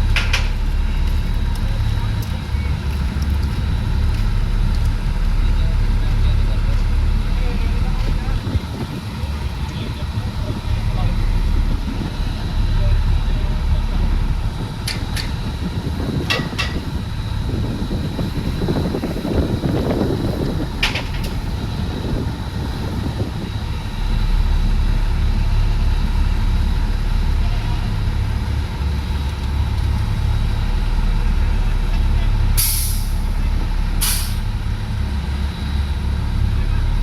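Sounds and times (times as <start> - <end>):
heavy vehicle engine rumbling: 0.0 - 37.0.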